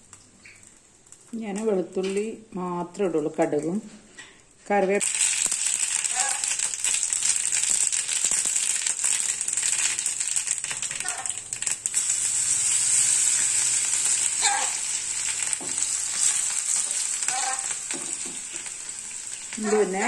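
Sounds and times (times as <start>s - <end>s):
hot oil sizzling in a pan: 5.0s - 20.0s
seeds crackling: 5.0s - 20.0s.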